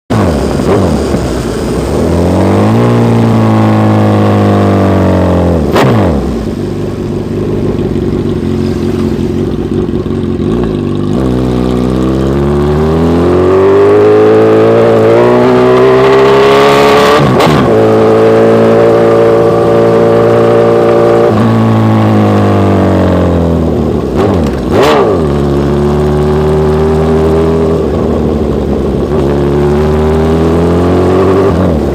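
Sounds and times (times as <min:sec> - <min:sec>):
motorcycle engine revving: 0:00.1 - 0:31.9
exhaust crack: 0:05.6 - 0:13.6, 0:23.5 - 0:30.6.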